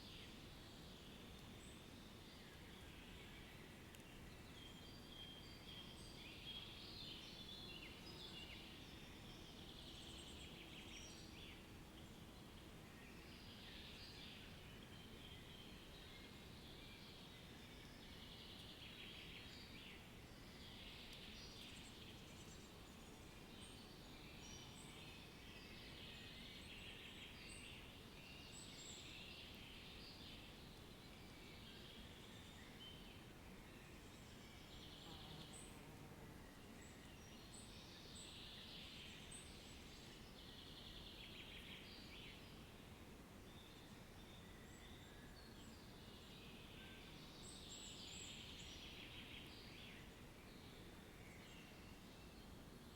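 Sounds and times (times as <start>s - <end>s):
low steady background hiss: 0.0s - 52.9s.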